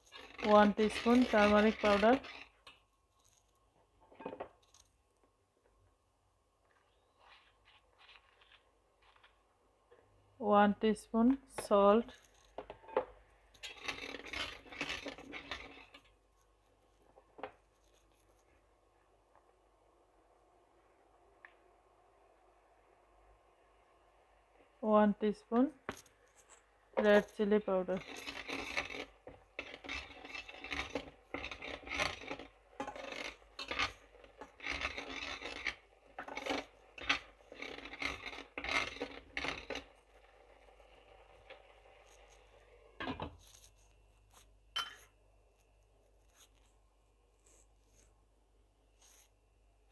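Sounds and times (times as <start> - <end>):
kitchen utensils scraping: 0.0 - 2.7, 11.6 - 16.2, 27.0 - 43.8, 44.8 - 45.1.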